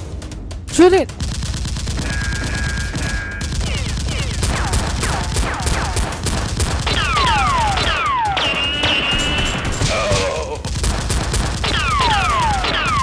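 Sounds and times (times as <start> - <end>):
rapid gunfire: 0.0 - 13.0
falling whistles: 7.0 - 9.6.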